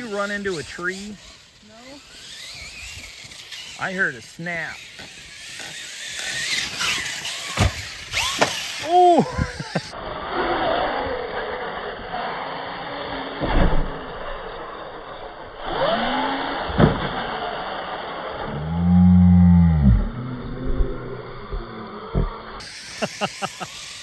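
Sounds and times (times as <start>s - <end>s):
electric motors whining: 0.0s - 24.0s
toy trucks hitting and landing: 0.4s - 10.0s, 15.6s - 18.6s, 22.2s - 24.0s.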